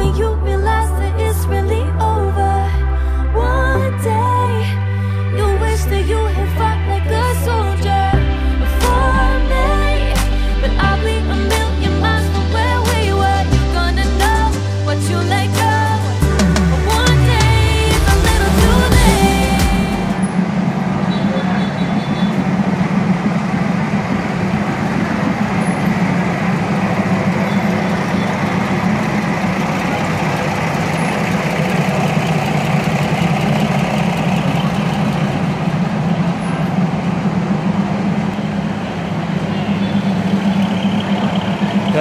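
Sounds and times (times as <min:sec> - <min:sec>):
low hum: 0:00.0 - 0:42.0
passenger train running: 0:18.7 - 0:42.0.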